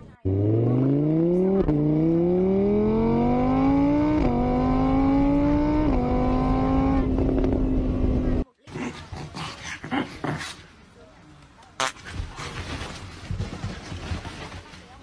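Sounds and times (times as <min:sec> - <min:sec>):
motorbike engine accelerating: 0:00.0 - 0:08.4.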